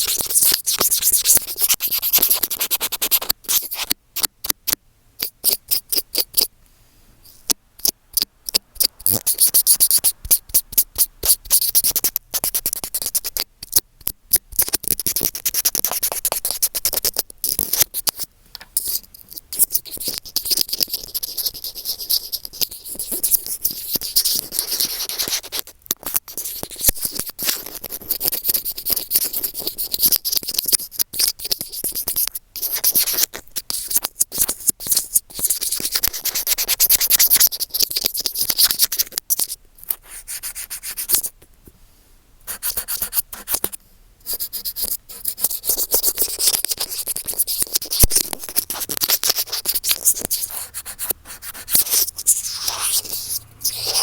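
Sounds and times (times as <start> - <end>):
microphone being rubbed and scratched: 44.8 - 54.0.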